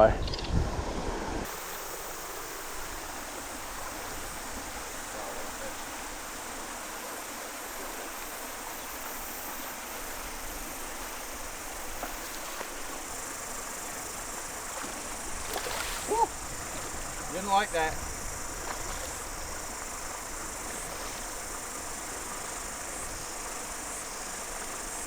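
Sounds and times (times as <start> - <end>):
mountain stream rushing: 0.8 - 25.0
insects chirring: 1.5 - 25.0.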